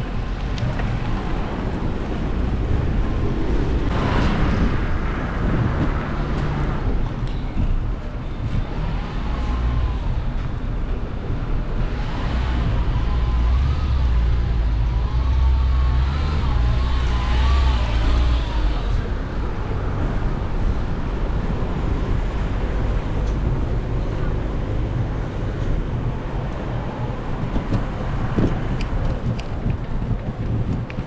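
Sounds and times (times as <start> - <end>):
traffic on a wet road: 0.0 - 31.0
wind on microphone: 0.0 - 31.0.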